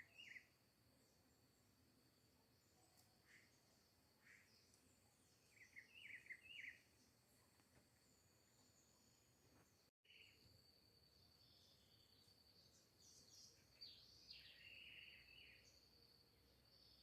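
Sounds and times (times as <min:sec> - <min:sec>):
bird chirps and calls: 0:00.0 - 0:00.5, 0:05.4 - 0:06.8.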